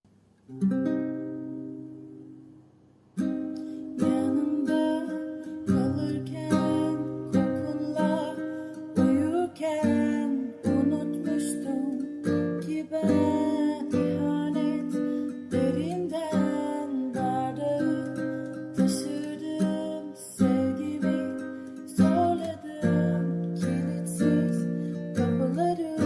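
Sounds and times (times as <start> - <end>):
strummed acoustic guitar chords: 3.2 - 26.0.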